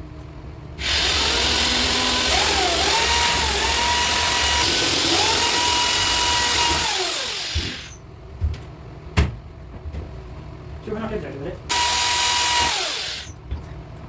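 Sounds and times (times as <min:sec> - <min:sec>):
electric drill running: 0:00.8 - 0:08.0, 0:11.7 - 0:13.4.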